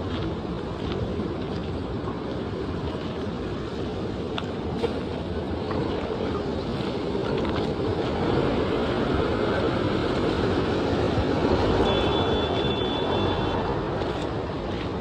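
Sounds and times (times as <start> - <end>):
passing traffic road noise: 0.0 - 15.0
wind rumbling on microphone: 0.0 - 15.0.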